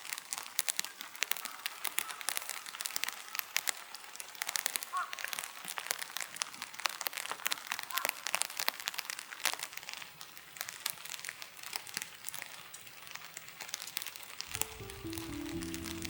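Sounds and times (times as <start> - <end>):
crinkling and crackling clicks: 0.0 - 16.0
music with held tones: 14.5 - 16.0.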